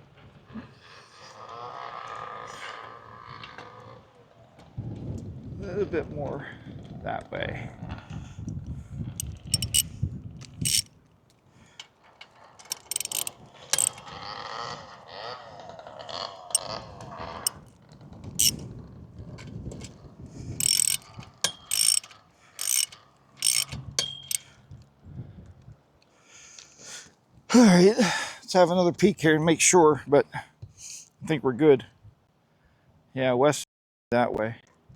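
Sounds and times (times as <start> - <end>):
rubbing of metal hardware: 9.2 - 9.8, 10.6 - 10.9, 12.7 - 14.0, 20.6 - 24.4
metal clicks and scraping: 9.2 - 9.9, 10.5 - 10.9, 12.6 - 14.0, 18.4 - 18.6, 20.6 - 24.4.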